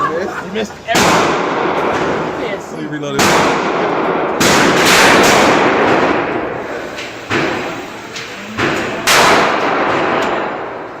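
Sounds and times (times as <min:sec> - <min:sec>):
handgun shots echoing: 0:08.6 - 0:10.5.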